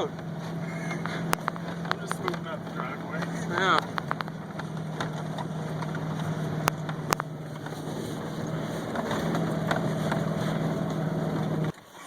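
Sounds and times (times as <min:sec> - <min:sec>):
pickup truck engine running: 0:00.0 - 0:11.9.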